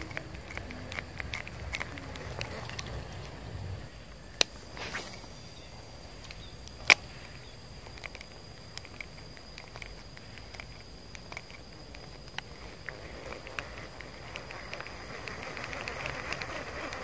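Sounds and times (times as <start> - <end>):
faint scattered ticks: 0.0 - 17.0
fishing reel clicks: 0.0 - 17.0
high-pitched whine: 0.0 - 17.0.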